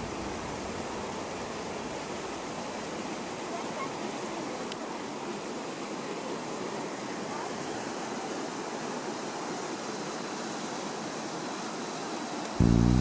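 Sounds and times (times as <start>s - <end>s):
music: 12.6s - 13.0s.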